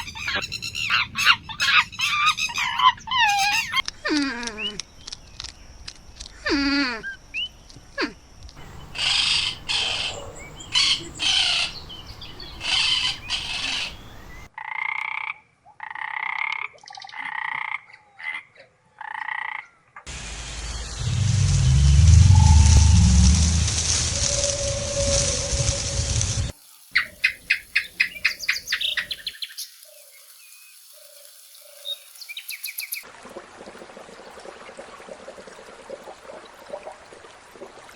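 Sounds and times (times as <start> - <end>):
harsh rasping animal calls: 0.0 - 4.2, 8.6 - 14.5
loud low rumble with hiss: 20.1 - 26.5.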